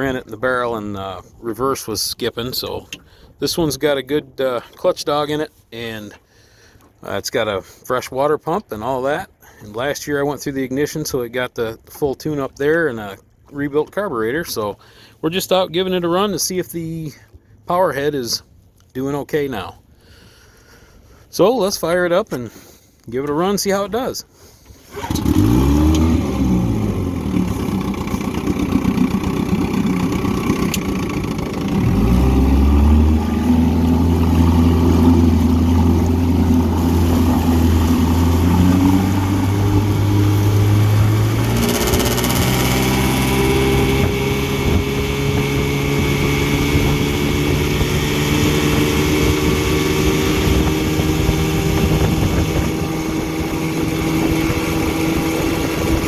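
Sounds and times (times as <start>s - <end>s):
outboard motor revving: 0.0s - 1.6s, 24.6s - 56.0s.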